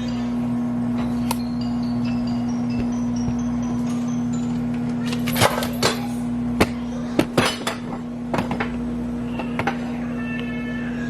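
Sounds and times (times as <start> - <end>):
steady low hum: 0.0 - 11.0
dishes and utensils clinking: 4.8 - 8.8.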